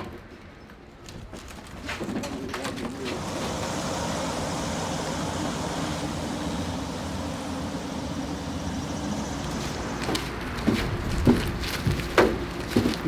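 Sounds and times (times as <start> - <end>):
engine droning steadily: 3.0 - 13.0.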